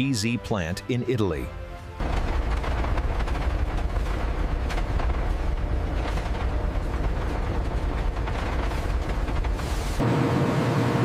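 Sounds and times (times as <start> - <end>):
factory machinery rumble: 0.0 - 11.0
machinery clanks and clicks: 2.0 - 10.1.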